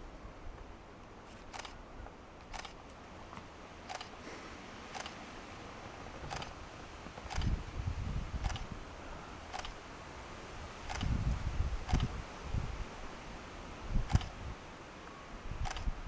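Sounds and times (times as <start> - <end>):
short sharp clicks: 1.5 - 1.8, 2.5 - 2.8, 4.9 - 5.2.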